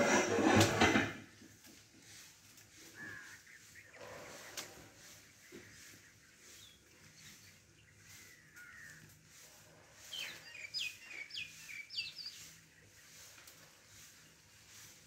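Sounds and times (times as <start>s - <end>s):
faint bird chirps: 2.8s - 13.3s.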